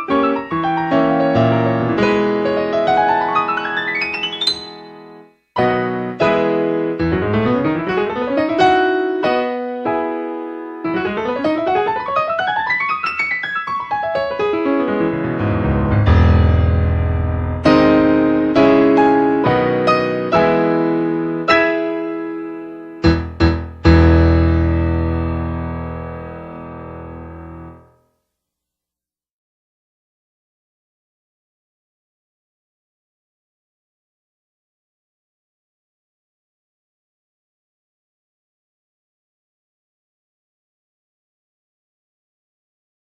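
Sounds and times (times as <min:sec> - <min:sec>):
piano arpeggio runs: 0:00.0 - 0:10.1, 0:10.8 - 0:21.7, 0:23.0 - 0:27.8.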